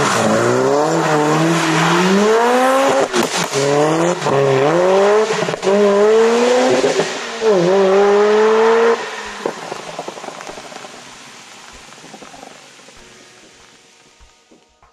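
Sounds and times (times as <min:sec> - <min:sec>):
car engine revving hard: 0:00.0 - 0:10.7
tyre spray on wet road: 0:00.0 - 0:14.6
hiss of rain: 0:00.0 - 0:14.7.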